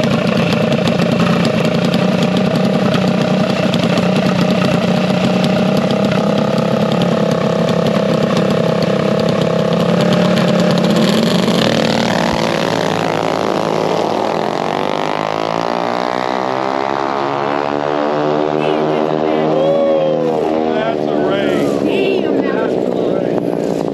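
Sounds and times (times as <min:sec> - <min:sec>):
engine accelerating: 0:00.0 - 0:23.9
minibike engines running hard: 0:00.0 - 0:23.9.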